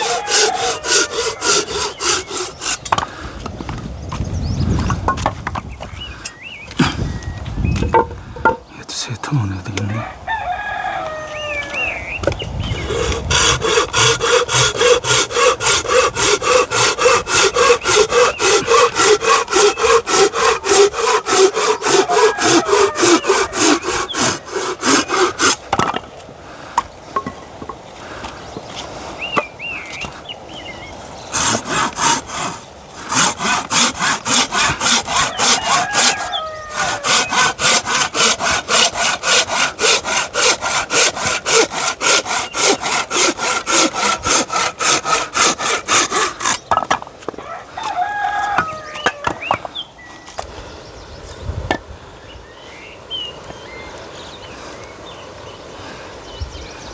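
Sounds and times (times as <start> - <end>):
hand saw cutting log: 0.0 - 3.7, 12.7 - 26.0, 31.3 - 47.0.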